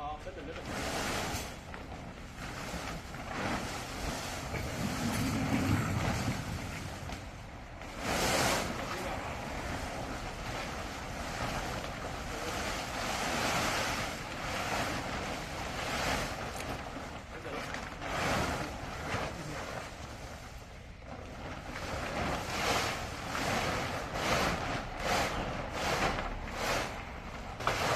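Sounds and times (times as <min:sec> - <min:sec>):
wind on microphone: 0:03.9 - 0:11.9.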